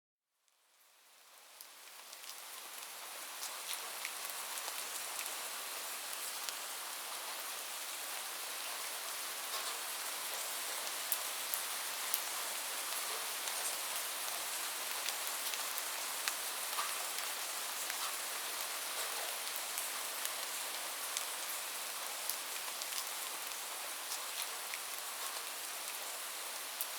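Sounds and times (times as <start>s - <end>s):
rain drops tapping on a surface: 1.4s - 5.4s, 9.4s - 26.1s.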